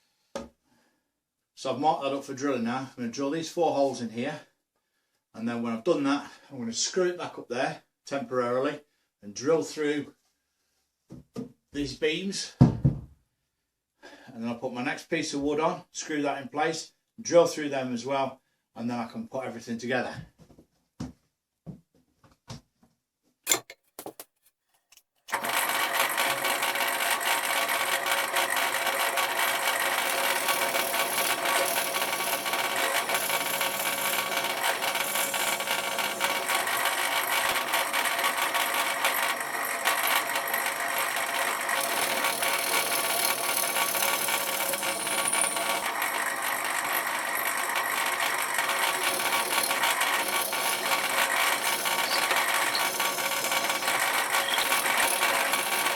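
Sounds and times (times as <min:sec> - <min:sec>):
electric drill boring timber: 0:25.3 - 0:55.9.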